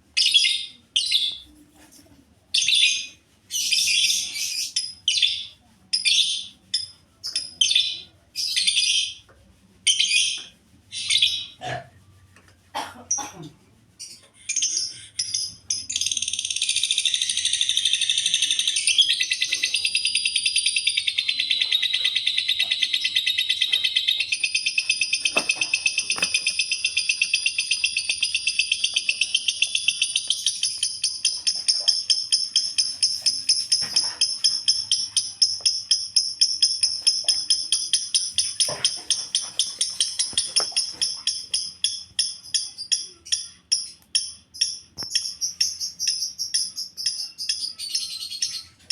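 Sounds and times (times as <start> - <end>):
bird chattering trill: 14.5 - 48.7.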